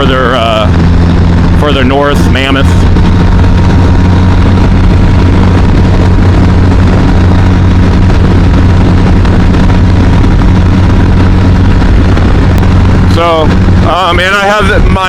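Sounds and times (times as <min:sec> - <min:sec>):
motorcycle engine cruising: 0:00.0 - 0:15.0
wind rush over microphone: 0:00.0 - 0:15.0.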